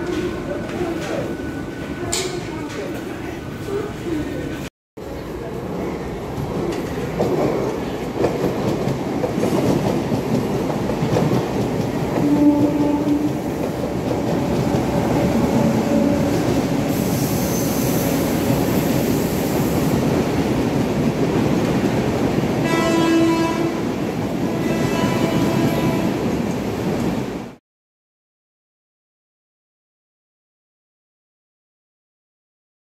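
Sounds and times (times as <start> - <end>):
train wheels rumbling on track: 0.0 - 27.6
train horn: 12.2 - 13.4, 22.6 - 23.9, 24.5 - 26.3.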